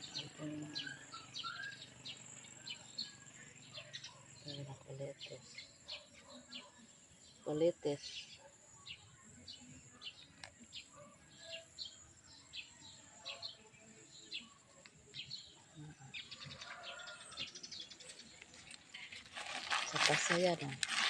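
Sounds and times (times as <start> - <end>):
faint small bird chirps: 0.0 - 6.8.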